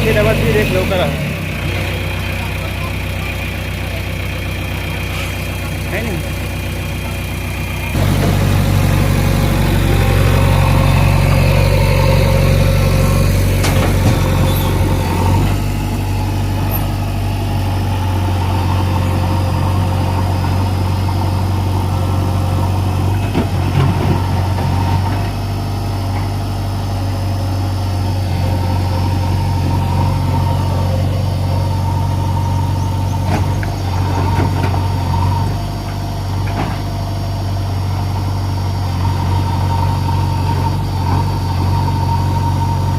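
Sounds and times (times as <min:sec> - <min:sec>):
diesel engine running: 0:00.0 - 0:42.9
knocks and rattles: 0:13.5 - 0:15.4.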